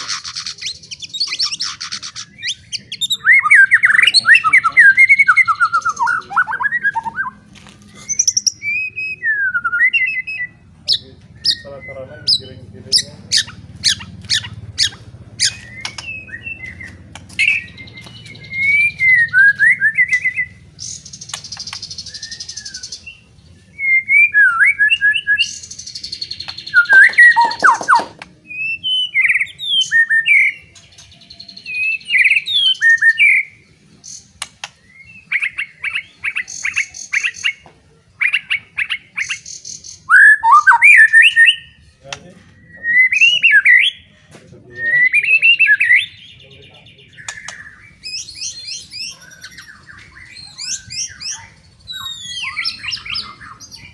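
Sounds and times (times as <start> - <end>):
harsh rattling bird trills: 0.0 - 6.2, 10.9 - 23.2
bird song with whistles and chirps: 0.0 - 7.4, 8.0 - 37.6, 38.2 - 53.9.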